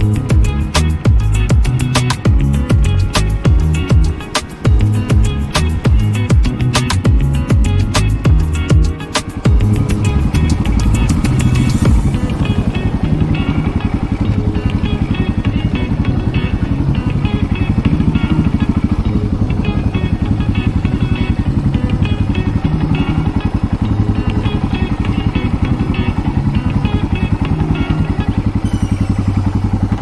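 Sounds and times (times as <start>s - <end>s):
music with steady beat: 0.0s - 13.9s
motorcycle engine running: 0.0s - 30.0s.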